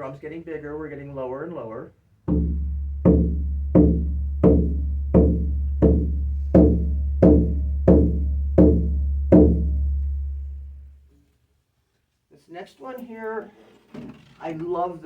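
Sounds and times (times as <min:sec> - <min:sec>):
frame drum beating: 0:02.3 - 0:10.9.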